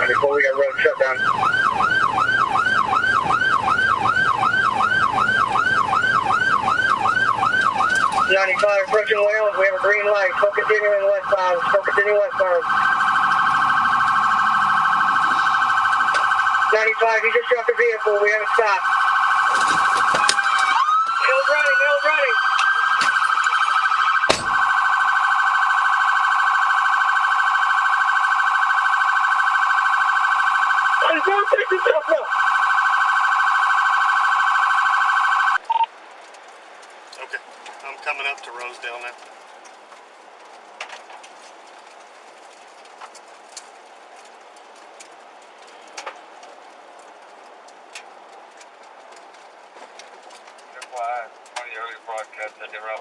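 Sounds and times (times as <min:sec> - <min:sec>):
police siren yelping: 0:00.0 - 0:35.9.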